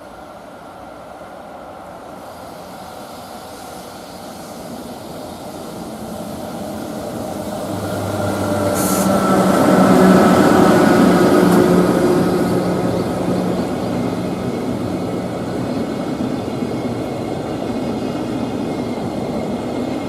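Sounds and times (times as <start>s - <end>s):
electric freight train passing: 0.0s - 20.0s
traction motor whine: 5.5s - 17.2s
brief hiss: 8.7s - 9.3s.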